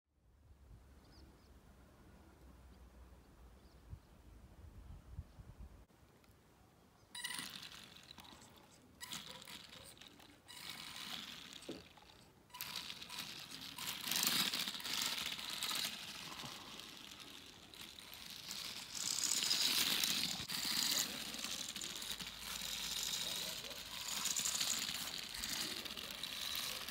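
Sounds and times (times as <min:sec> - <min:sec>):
small electric motor whirring: 0:07.2 - 0:26.9
toy car wheels rattling over tiles: 0:07.2 - 0:26.9.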